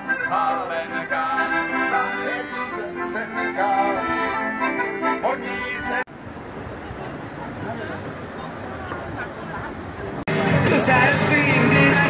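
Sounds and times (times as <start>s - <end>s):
accordion music: 0.0s - 6.1s, 10.3s - 12.0s.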